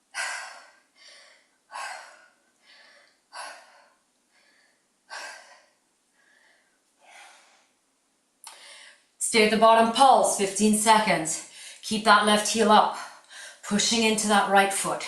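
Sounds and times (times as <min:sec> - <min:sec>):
woman breathing hard: 0:00.0 - 0:07.8, 0:08.5 - 0:09.1, 0:11.5 - 0:11.8, 0:13.0 - 0:13.6.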